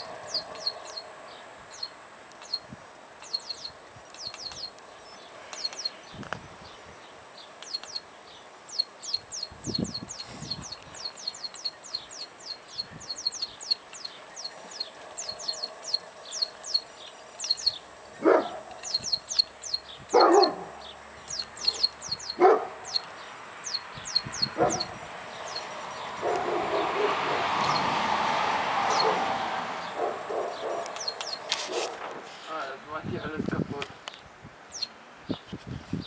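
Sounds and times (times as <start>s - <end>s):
rapid high falling chirps: 1.7s - 4.8s, 21.2s - 25.8s
rustling: 31.4s - 32.7s.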